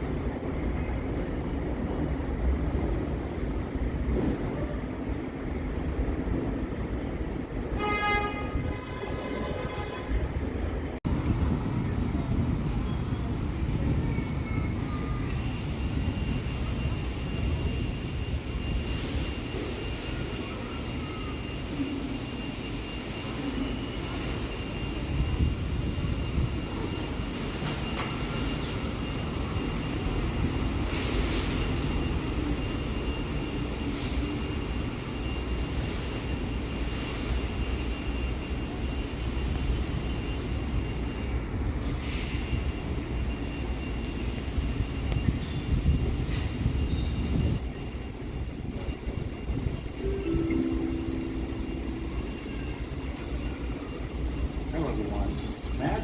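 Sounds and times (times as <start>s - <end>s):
subway car rumbling on track: 0.0s - 56.0s
thin high whine: 49.6s - 54.6s.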